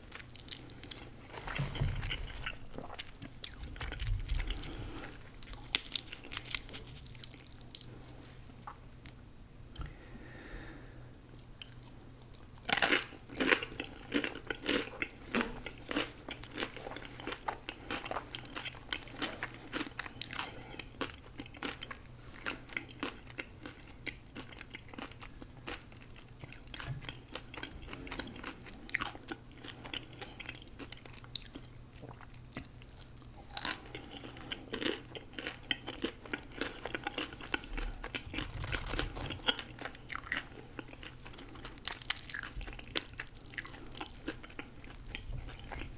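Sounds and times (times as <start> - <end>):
chewing with small crunches: 0.0 - 9.2, 11.3 - 45.9
crunchy bite: 34.8 - 45.9.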